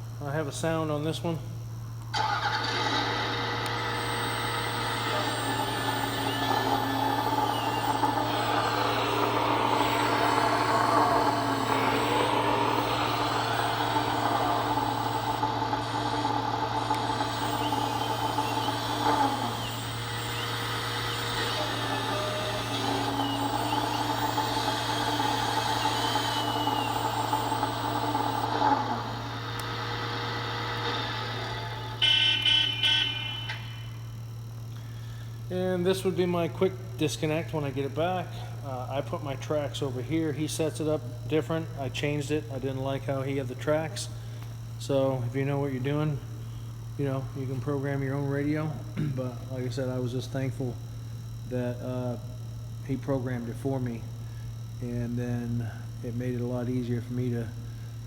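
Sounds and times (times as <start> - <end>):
steady low hum: 0.0 - 58.0
simulated diesel engine revving: 2.2 - 32.0.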